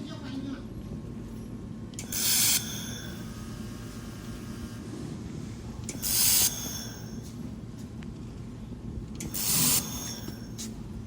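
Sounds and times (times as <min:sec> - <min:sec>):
steady machine hum: 0:00.0 - 0:11.0
laser welder hissing: 0:09.2 - 0:10.4.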